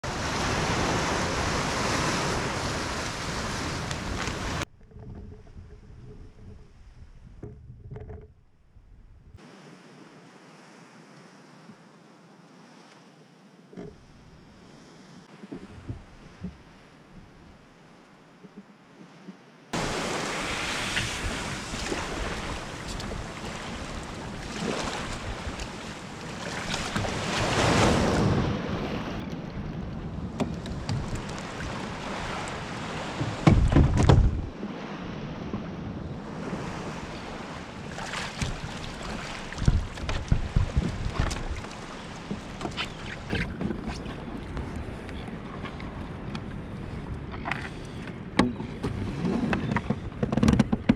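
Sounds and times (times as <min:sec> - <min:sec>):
water rushing past kayak: 0:00.0 - 0:05.3, 0:19.8 - 0:46.3
wind buffeting microphone: 0:20.8 - 0:50.9.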